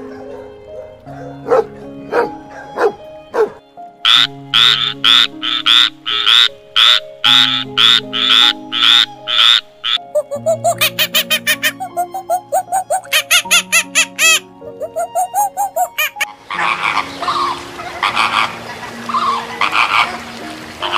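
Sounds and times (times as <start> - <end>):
animal calling: 0.0 - 20.9
background music: 0.0 - 20.9.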